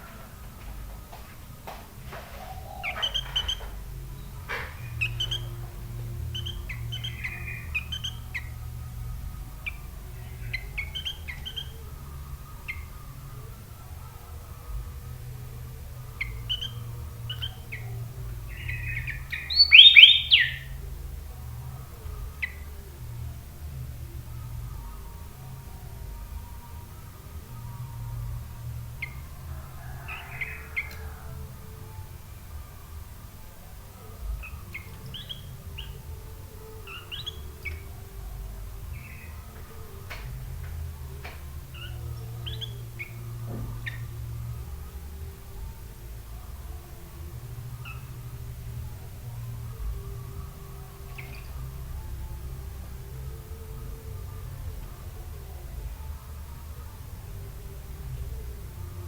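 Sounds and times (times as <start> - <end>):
low steady hum: 0.0 - 59.0
bird chirping and whistling: 2.6 - 4.3, 4.9 - 5.6, 6.3 - 8.5, 16.2 - 17.8, 18.5 - 20.8, 34.7 - 36.0, 41.7 - 43.2
bird chirping call notes: 16.2 - 20.8.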